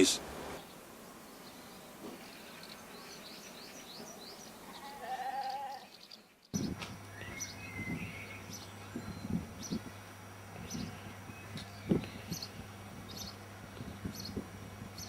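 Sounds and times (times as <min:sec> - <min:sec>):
birds chirping: 0:00.0 - 0:15.0
wavering animal call: 0:04.6 - 0:05.9
low steady hum: 0:06.6 - 0:15.0.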